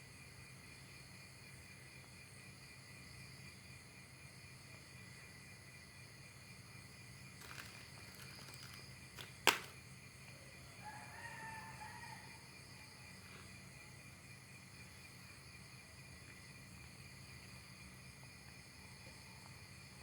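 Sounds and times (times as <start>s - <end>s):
insects droning: 0.0s - 20.0s
sharp click: 7.4s - 9.8s
rooster crowing: 10.8s - 12.5s.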